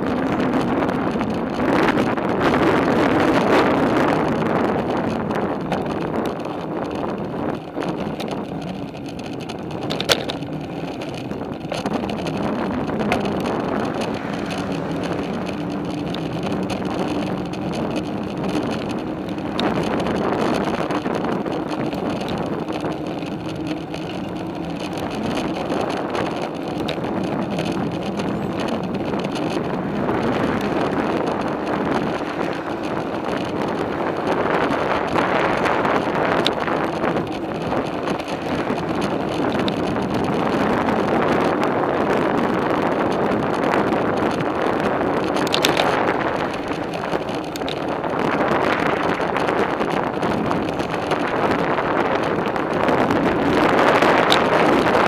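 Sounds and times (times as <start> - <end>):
bicycle tyre and drivetrain noise: 0.0 - 55.0
wind on microphone: 0.0 - 55.0.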